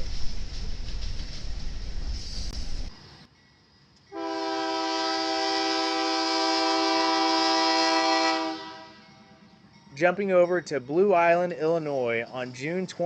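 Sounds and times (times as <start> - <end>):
locomotive air horn chord: 4.1 - 9.3.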